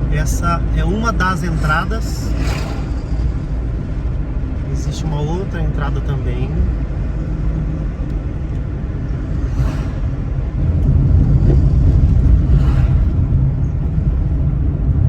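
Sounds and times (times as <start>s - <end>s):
car engine and tyres rumbling: 0.0s - 15.0s
hissing swells: 1.4s - 3.9s, 9.1s - 10.6s.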